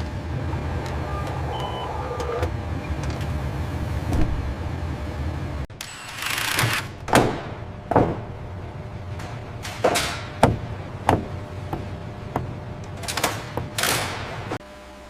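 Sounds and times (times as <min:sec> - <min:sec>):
sharp knocks and clunks: 0:07.0 - 0:08.4, 0:09.1 - 0:14.6.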